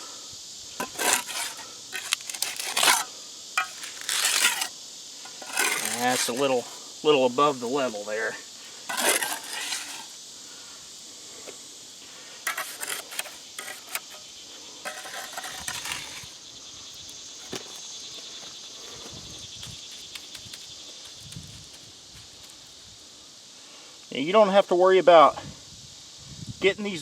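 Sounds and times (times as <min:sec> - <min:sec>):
steady high hiss: 0:00.0 - 0:15.3, 0:16.0 - 0:27.0
hand tool scraping wet concrete: 0:00.8 - 0:06.8, 0:08.8 - 0:10.2, 0:12.4 - 0:16.4.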